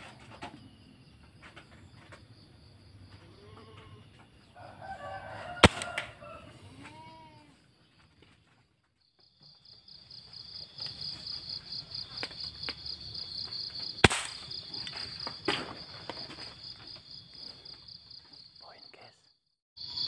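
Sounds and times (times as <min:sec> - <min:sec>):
air rifle shot: 0:05.6 - 0:06.1, 0:14.0 - 0:14.5.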